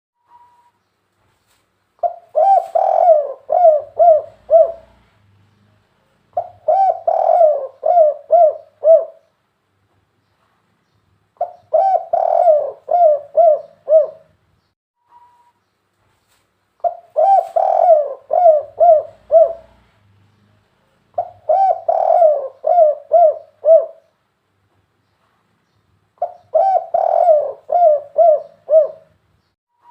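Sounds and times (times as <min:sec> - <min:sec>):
dove cooing: 0:02.0 - 0:05.2, 0:06.3 - 0:09.3, 0:11.4 - 0:14.3, 0:16.8 - 0:20.0, 0:21.2 - 0:24.1, 0:26.2 - 0:29.1.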